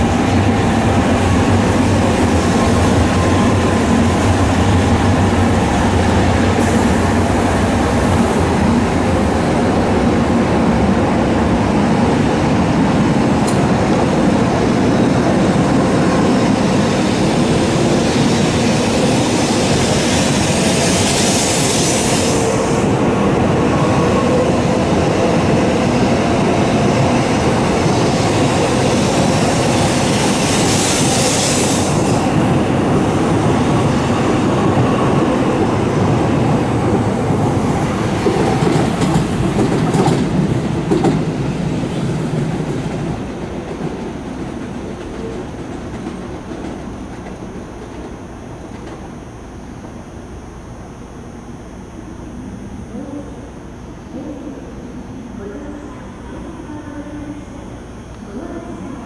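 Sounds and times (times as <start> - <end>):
train rumbling on rails: 0.0 - 59.0
high hiss: 17.0 - 23.0, 28.7 - 32.4.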